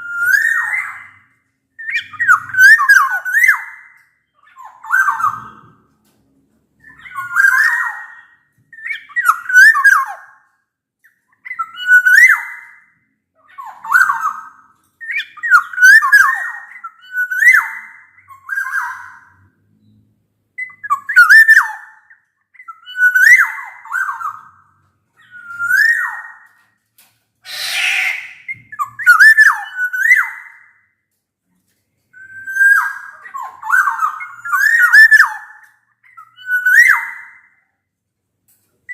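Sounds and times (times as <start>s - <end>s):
bird fluty whistled song: 0.0s - 5.9s, 6.8s - 26.6s, 27.5s - 31.0s, 32.1s - 37.7s
harsh rasping bird call: 27.4s - 28.5s.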